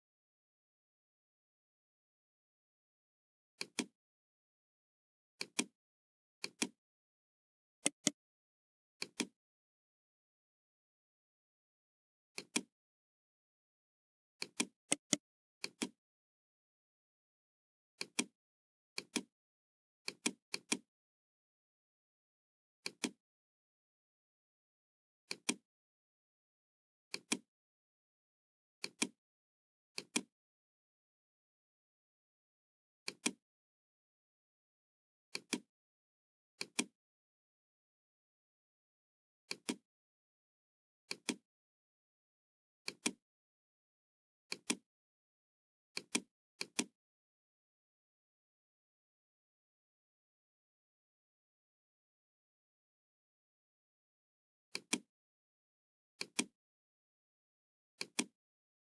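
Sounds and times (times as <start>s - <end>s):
computer mouse clicks: 3.6s - 3.9s, 5.4s - 5.7s, 6.4s - 6.8s, 7.8s - 8.2s, 14.4s - 16.0s, 28.8s - 29.2s, 33.1s - 33.4s, 36.6s - 36.9s, 39.5s - 39.8s, 41.1s - 41.4s, 42.9s - 43.2s, 44.5s - 44.8s, 46.0s - 46.9s, 54.7s - 55.0s, 56.2s - 56.5s, 58.0s - 58.3s.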